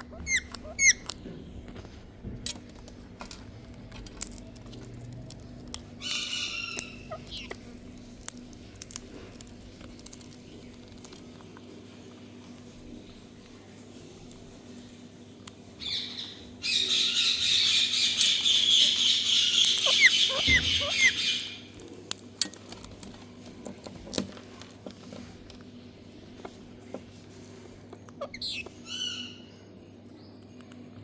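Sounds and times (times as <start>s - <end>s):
parakeet screeching: 0.0s - 1.1s, 6.0s - 7.6s, 16.6s - 21.7s, 28.2s - 29.4s.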